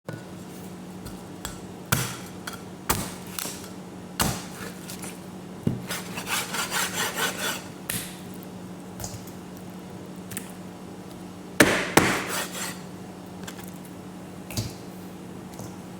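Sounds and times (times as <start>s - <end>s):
knife chopping on wooden board: 1.4s - 2.3s, 4.2s - 4.7s, 5.7s - 8.2s, 11.6s - 12.8s.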